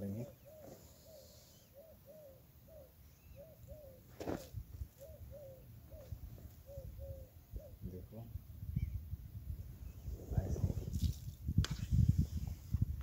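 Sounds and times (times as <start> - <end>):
bird calling: 0.0 - 8.0.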